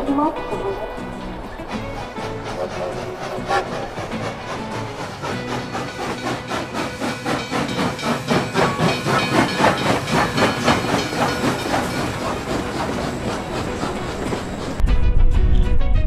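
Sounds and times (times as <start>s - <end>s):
steam hissing: 0.0s - 14.8s
steam locomotive chuffing: 0.0s - 14.8s.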